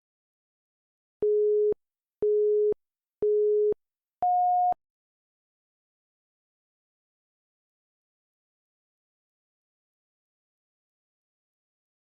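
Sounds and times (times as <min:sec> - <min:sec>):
short electronic beeps: 0:01.2 - 0:04.8.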